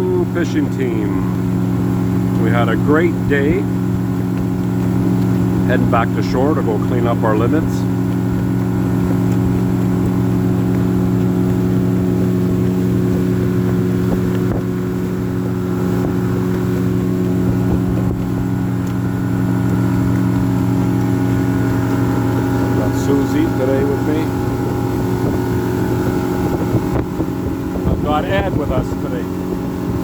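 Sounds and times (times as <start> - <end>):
boat motor running: 0.0 - 30.0.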